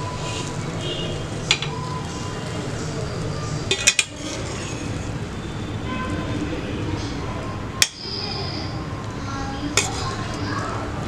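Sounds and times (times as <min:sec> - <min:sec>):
spoon clinking and scraping pot: 0:03.7 - 0:04.9.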